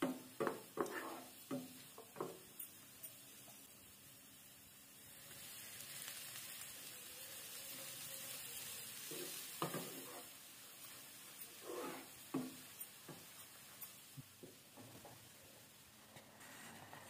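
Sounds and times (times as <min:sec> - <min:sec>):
wooden spatula scraping a pan: 0:00.0 - 0:02.4, 0:09.0 - 0:14.0, 0:16.1 - 0:17.0
coconut sizzling in hot oil: 0:00.0 - 0:17.0.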